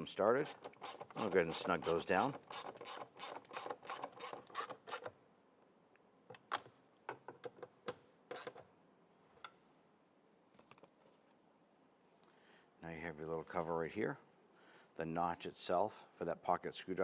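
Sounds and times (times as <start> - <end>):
hand ratchet clicking: 0.4 - 5.1.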